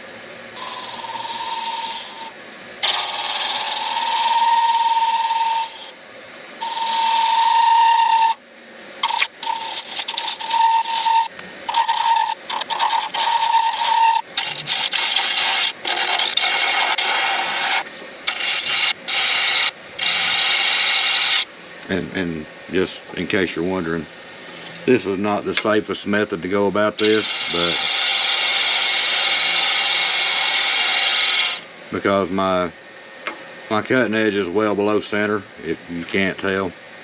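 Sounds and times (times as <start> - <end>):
lathe tool scraping cut: 0.6 - 6.0, 6.6 - 8.4, 9.0 - 21.5, 27.0 - 31.6.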